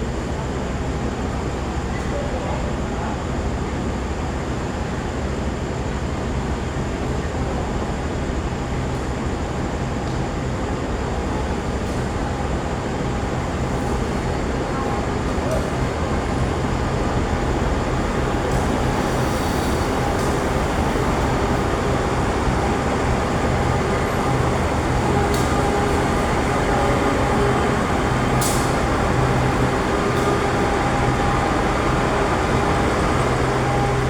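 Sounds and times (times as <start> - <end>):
train engine and rolling noise: 0.0 - 34.0
sharp clicks from wheels and rails: 23.4 - 34.0.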